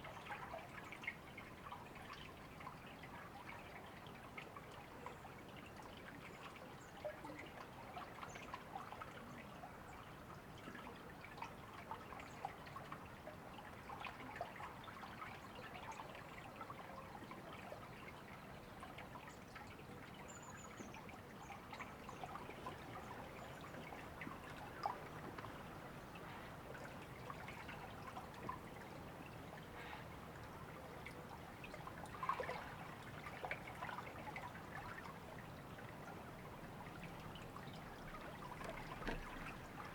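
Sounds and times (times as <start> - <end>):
river water babbling over stones: 31.2 - 39.9.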